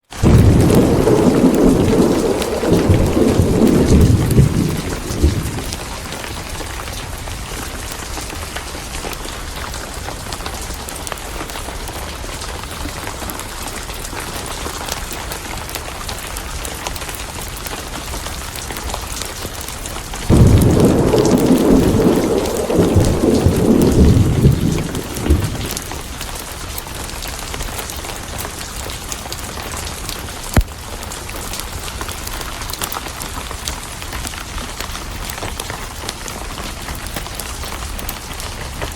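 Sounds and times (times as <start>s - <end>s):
heavy rain: 0.0s - 38.9s
sharp thunder crack: 0.2s - 6.1s, 20.3s - 26.0s
rolling thunder: 0.2s - 6.6s, 20.2s - 26.3s.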